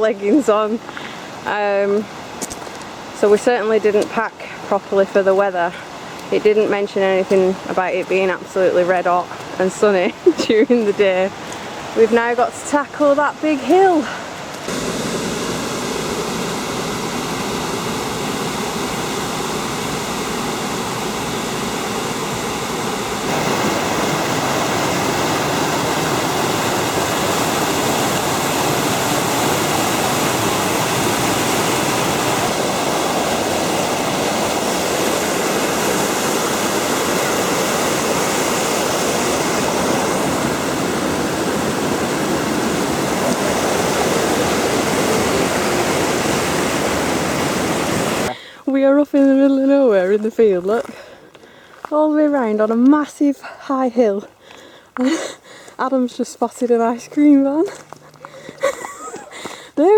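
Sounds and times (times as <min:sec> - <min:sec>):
waterfall and river rushing: 0:10.8 - 0:48.3.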